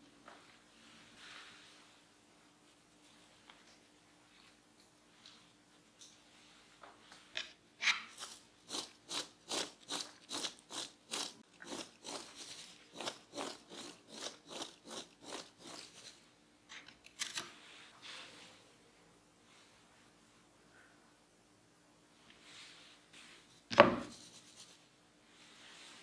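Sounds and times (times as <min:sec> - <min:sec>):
knife cutting potato on board: 0:07.4 - 0:16.2, 0:23.7 - 0:24.2.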